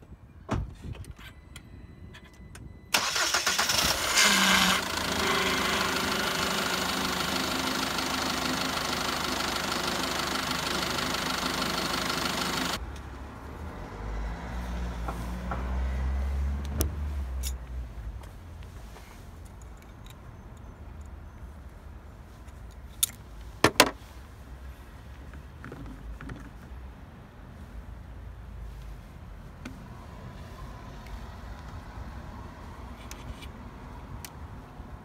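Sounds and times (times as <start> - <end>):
car engine starting and idling: 1.3 - 12.9.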